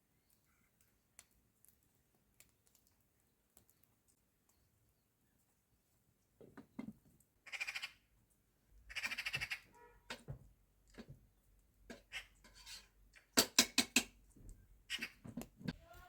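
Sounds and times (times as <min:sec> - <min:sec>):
harsh raspy animal calls: 0:07.5 - 0:08.0, 0:08.9 - 0:10.2, 0:14.9 - 0:15.2.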